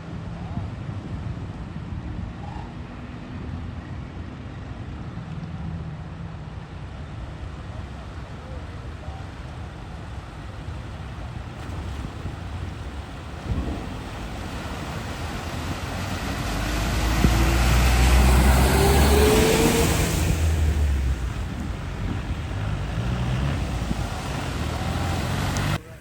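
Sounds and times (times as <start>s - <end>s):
vehicle engine: 9.4s - 26.0s
water spray rushing: 11.2s - 26.0s.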